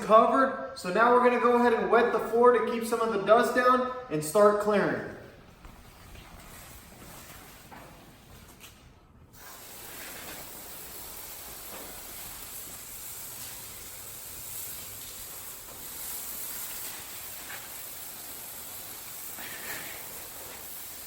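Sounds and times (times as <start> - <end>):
spraying hiss: 9.3 - 21.0.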